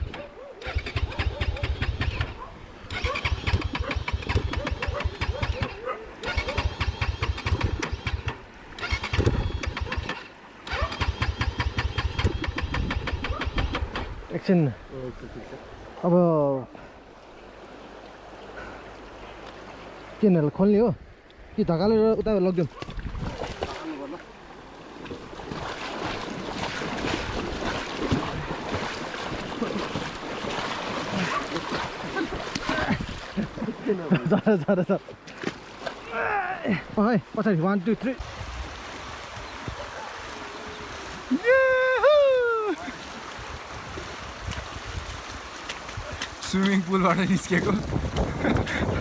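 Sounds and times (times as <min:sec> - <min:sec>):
motorbike engine cranking: 0:00.1 - 0:02.3, 0:02.9 - 0:05.7, 0:06.3 - 0:14.0
river water rushing: 0:13.8 - 0:21.6, 0:23.3 - 0:48.5.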